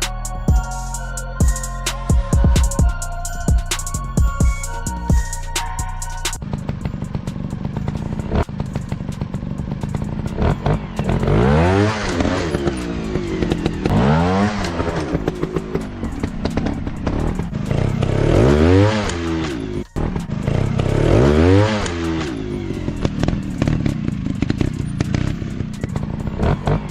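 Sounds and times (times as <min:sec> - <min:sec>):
dirt bike engine revving: 0:06.3 - 0:26.9.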